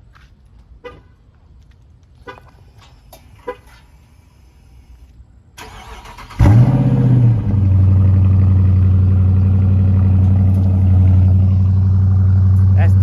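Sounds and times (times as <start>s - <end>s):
car engine cranking and starting: 5.6s - 13.0s.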